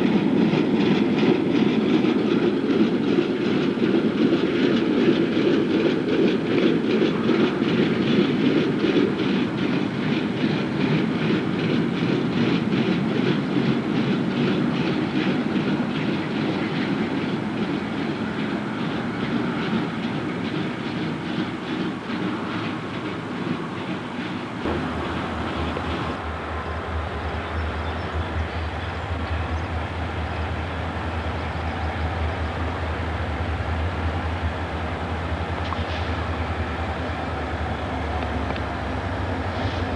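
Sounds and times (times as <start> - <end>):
train wheels clicking on rails: 0.0 - 39.9
steady low rumble: 24.7 - 26.2.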